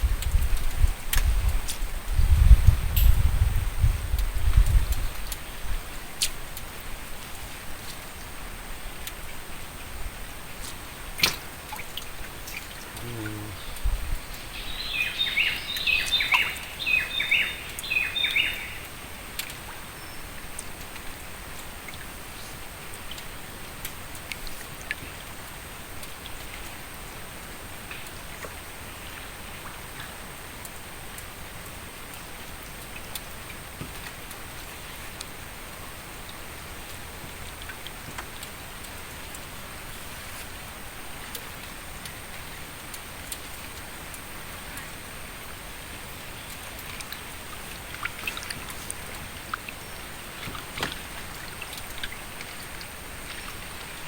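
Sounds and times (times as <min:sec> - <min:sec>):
background hiss: 0:00.0 - 0:54.0
bird chirping: 0:13.0 - 0:18.9.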